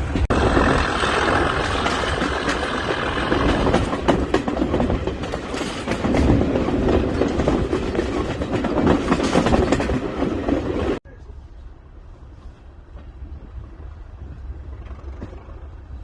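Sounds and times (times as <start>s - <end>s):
wheels clicking over rail joints: 0.0s - 11.0s
train rumbling: 0.0s - 16.0s.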